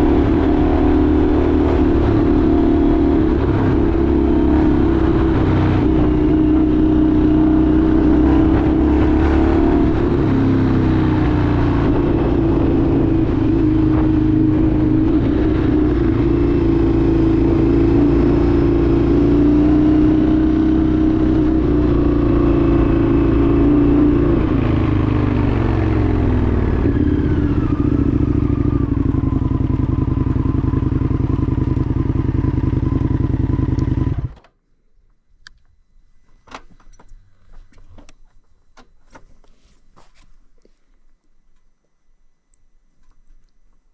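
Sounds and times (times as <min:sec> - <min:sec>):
motorcycle engine running: 0:00.0 - 0:34.4.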